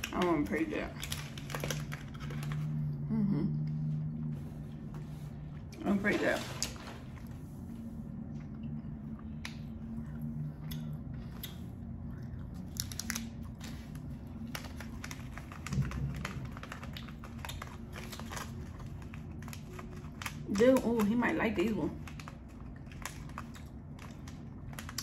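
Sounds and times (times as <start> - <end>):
chewing sticky candy: 0.0 - 3.0, 8.2 - 25.0
low hum: 0.0 - 25.0.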